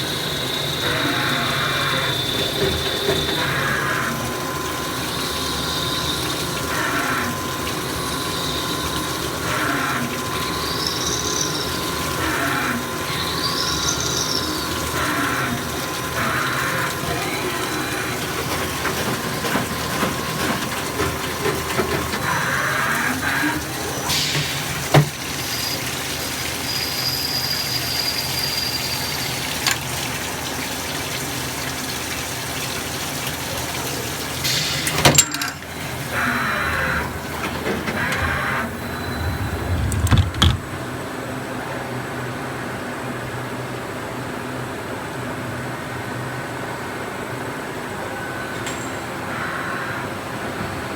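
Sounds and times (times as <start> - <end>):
coolant splashing: 0.0 - 41.1.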